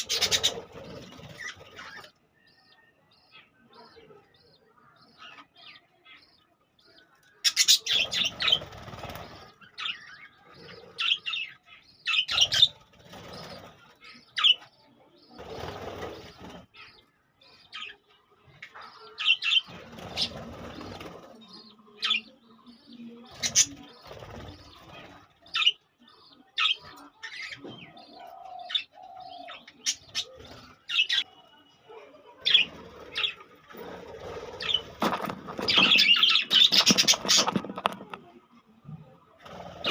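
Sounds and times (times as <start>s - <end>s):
wings flapping: 0.0s - 2.0s, 8.0s - 9.5s, 12.4s - 13.9s, 15.4s - 16.6s, 19.7s - 21.4s, 32.6s - 38.3s
budgerigars chirping: 0.0s - 6.4s, 7.4s - 18.0s, 18.7s - 31.4s, 32.4s - 38.0s.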